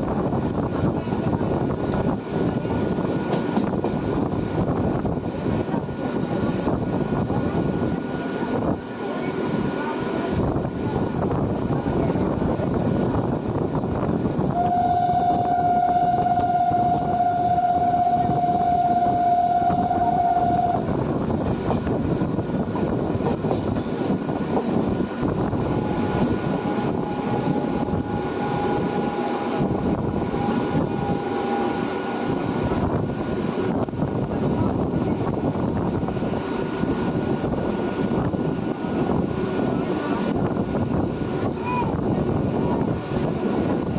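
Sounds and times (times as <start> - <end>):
train rumbling on rails: 0.0 - 43.9
train horn: 14.5 - 21.0, 25.7 - 32.4.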